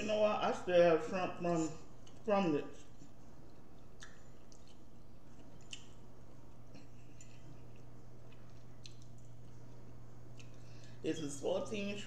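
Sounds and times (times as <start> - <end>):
steady low hum: 0.0 - 12.0
wet chewing: 2.0 - 11.0
mouth clicks and smacks: 3.4 - 9.5.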